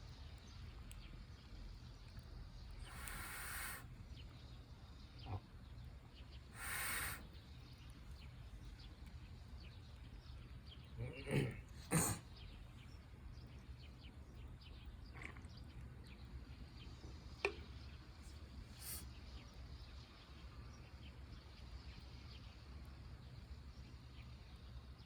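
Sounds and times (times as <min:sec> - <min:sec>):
faint ticks: 0:00.1 - 0:04.4
brief hiss: 0:02.9 - 0:03.9, 0:06.6 - 0:07.3, 0:18.7 - 0:19.1.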